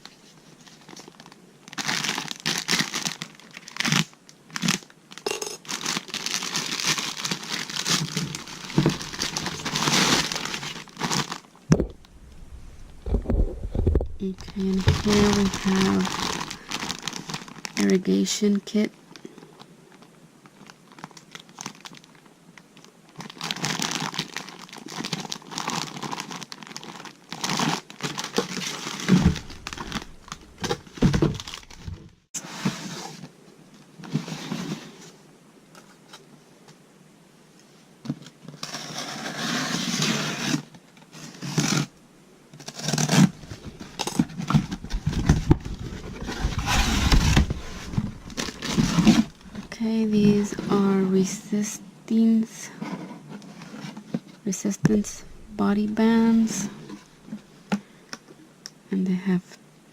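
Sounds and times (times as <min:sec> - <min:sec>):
packaging being unwrapped: 0:00.6 - 0:12.2, 0:14.1 - 0:17.9, 0:19.9 - 0:22.2, 0:22.8 - 0:32.1, 0:42.6 - 0:50.6
low thumps of items set down: 0:11.7 - 0:14.2.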